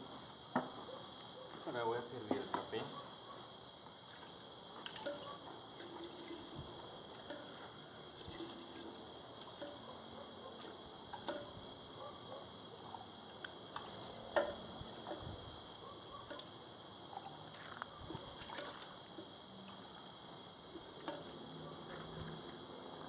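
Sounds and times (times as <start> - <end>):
crickets trilling: 0.0 - 23.0
coffee pouring into cups: 5.8 - 9.8
cups clinking: 14.3 - 15.3.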